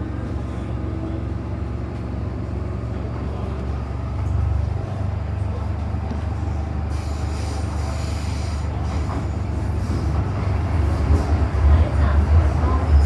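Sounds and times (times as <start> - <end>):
train wheels rumbling: 6.1 - 13.0.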